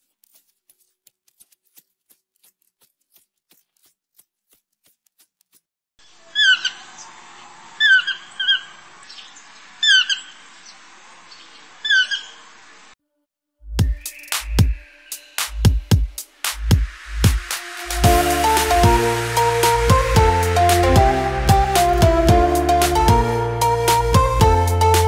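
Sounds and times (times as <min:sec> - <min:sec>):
steady background hiss: 0:06.2 - 0:13.0
bird squawking: 0:06.3 - 0:07.1, 0:07.8 - 0:10.4, 0:11.3 - 0:12.5.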